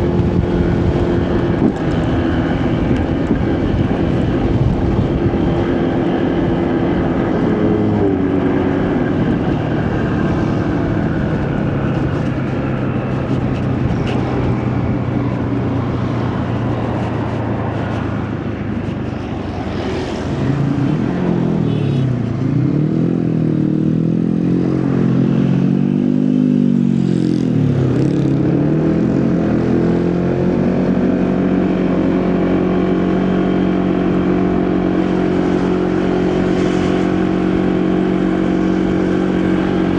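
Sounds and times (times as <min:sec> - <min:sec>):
motorcycle engine running: 0:00.0 - 0:22.3
wind and road noise: 0:00.0 - 0:39.9.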